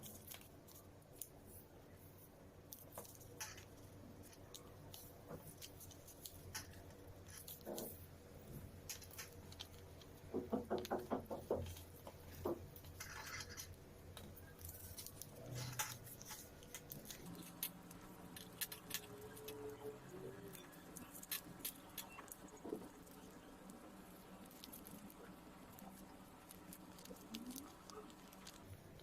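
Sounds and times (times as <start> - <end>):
paper being folded and creased: 14.4 - 23.2.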